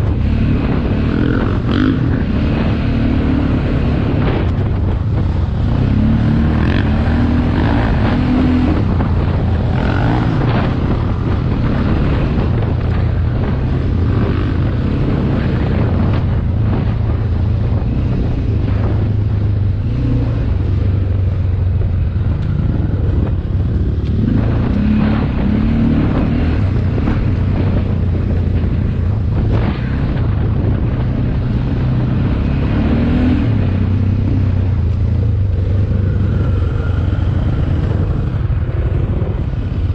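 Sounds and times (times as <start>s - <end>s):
dirt bike engine revving: 0.0s - 19.0s, 22.2s - 28.8s
wind on microphone: 0.0s - 39.9s.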